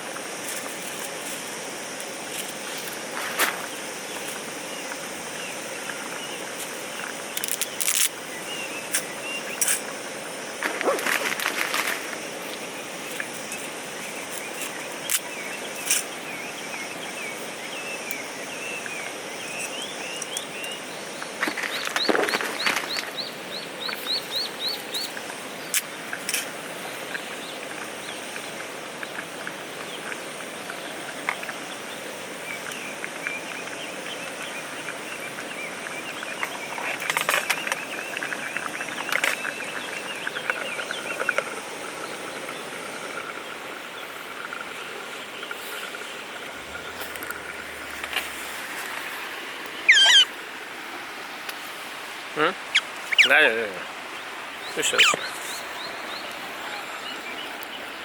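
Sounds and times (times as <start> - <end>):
birds singing: 12.4 - 26.0, 45.2 - 50.4, 52.4 - 58.0
river stream rushing: 45.0 - 58.0
water splashing: 46.4 - 55.8.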